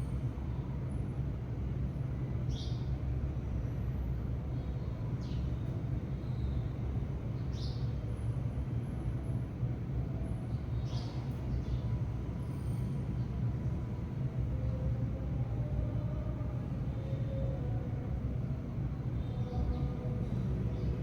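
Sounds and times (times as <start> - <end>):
sparrow chirps: 7.5 - 7.8, 10.8 - 11.8.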